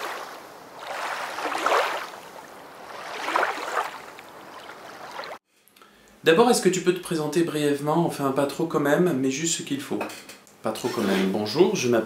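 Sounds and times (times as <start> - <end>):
waves washing in: 0.0 - 5.4.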